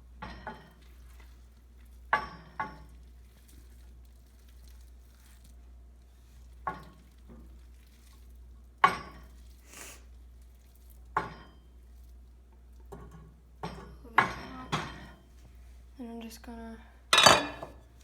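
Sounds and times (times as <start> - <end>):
spoon clinking on mixing bowl: 17.2 - 17.8.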